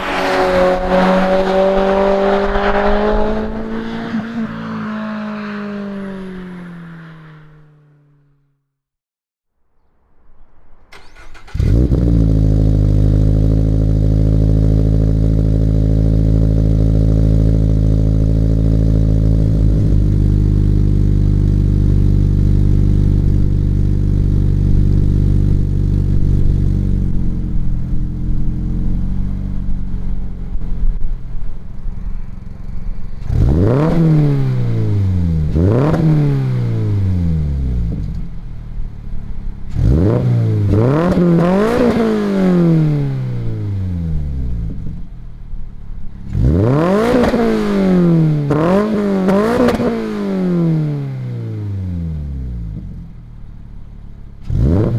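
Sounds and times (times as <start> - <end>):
car engine starting and revving: 0.0 - 8.3, 10.9 - 45.4, 46.1 - 54.9.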